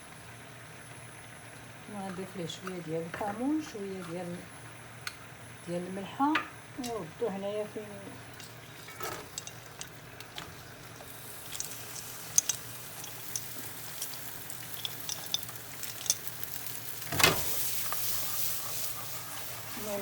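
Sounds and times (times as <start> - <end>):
shrimp sizzling in hot oil: 6.8 - 20.0
utensil clicking against pan: 8.4 - 18.1.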